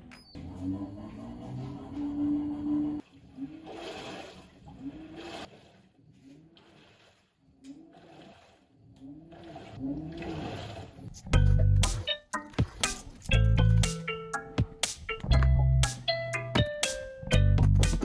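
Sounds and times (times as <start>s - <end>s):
washing machine agitating: 0.4s - 11.6s
water and laundry swishing: 0.4s - 13.2s
music: 11.1s - 18.0s.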